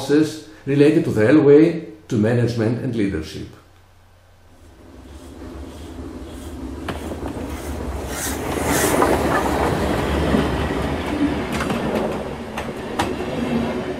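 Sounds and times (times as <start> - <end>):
train running on track: 4.6 - 13.9.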